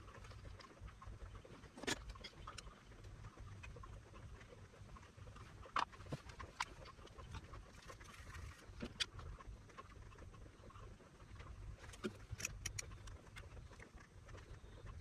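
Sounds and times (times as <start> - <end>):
faint clicks and taps: 0.0 - 15.0
low steady hum: 0.0 - 15.0.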